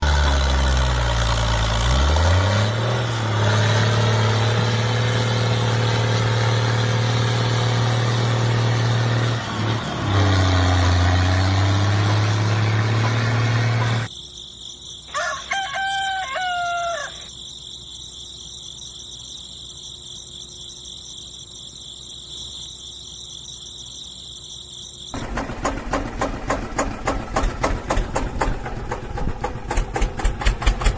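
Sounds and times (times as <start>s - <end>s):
engine running loudly: 0.0s - 14.1s, 25.2s - 30.9s
rooster crowing: 15.1s - 17.3s.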